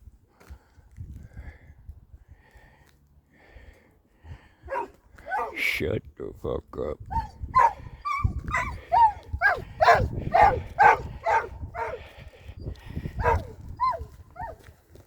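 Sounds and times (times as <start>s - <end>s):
dog barking and yelping: 4.7s - 5.6s, 7.1s - 12.2s, 13.1s - 14.7s.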